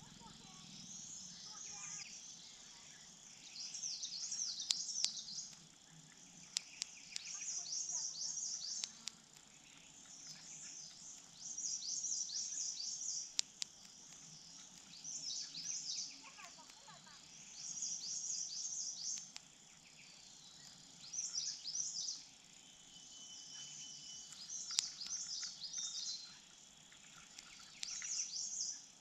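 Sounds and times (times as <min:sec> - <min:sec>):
songbird chirping: 0:00.0 - 0:29.0
sharp clicks: 0:04.0 - 0:17.0, 0:18.8 - 0:19.6, 0:24.3 - 0:26.0, 0:27.2 - 0:28.3.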